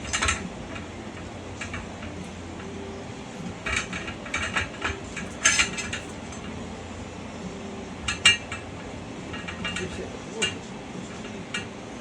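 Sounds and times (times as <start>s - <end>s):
low steady hum: 0.0s - 12.0s
metal tools clanking: 3.4s - 6.6s.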